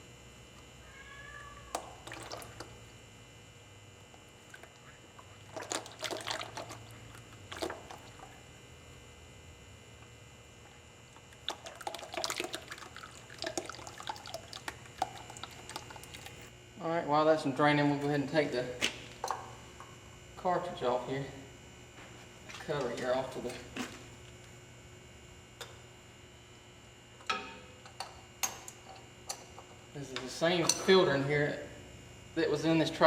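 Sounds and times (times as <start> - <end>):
oil pouring and trickling: 1.8 - 2.7, 4.4 - 8.4, 11.4 - 16.5.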